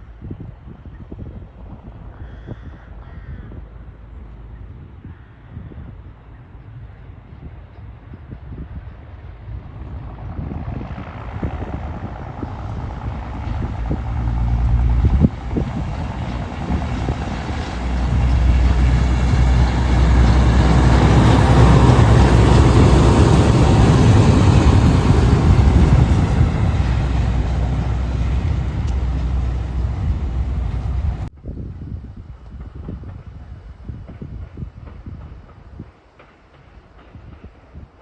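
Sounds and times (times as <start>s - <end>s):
wheels rumbling on rails: 6.5s - 31.3s
rail trolley engine running: 10.8s - 31.3s.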